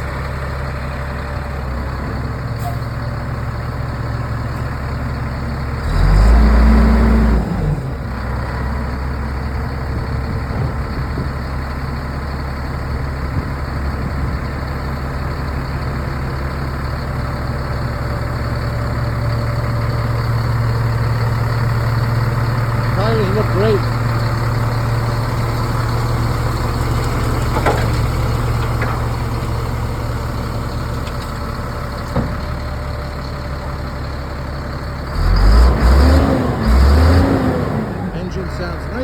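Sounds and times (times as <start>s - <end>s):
diesel truck engine idling: 0.0s - 39.0s
engine revving: 5.8s - 8.5s, 35.1s - 39.0s.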